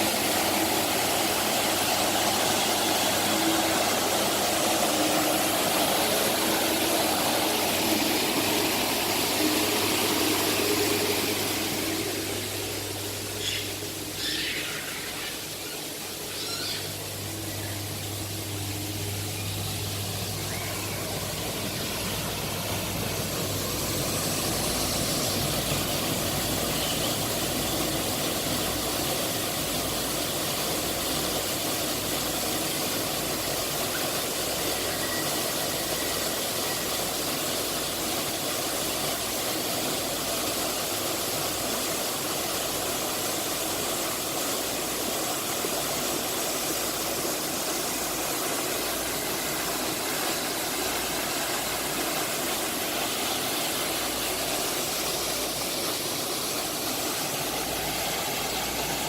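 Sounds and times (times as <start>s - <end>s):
engine-like hum: 0.0s - 39.3s.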